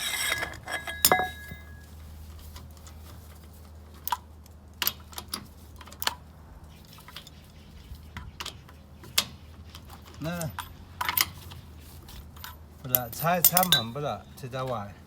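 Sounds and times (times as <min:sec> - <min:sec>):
metal tools clicking and tapping: 0:00.0 - 0:01.9, 0:08.2 - 0:11.6, 0:12.3 - 0:14.8
steady low hum: 0:00.0 - 0:02.4.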